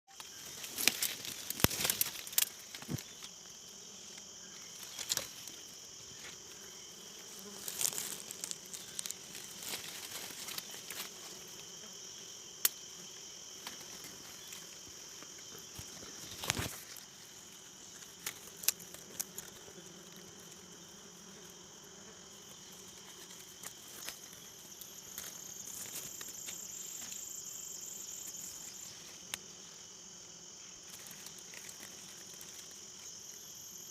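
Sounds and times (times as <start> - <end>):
insects chirring: 0.1 - 33.9
sharp clicks and crackles: 0.2 - 3.3.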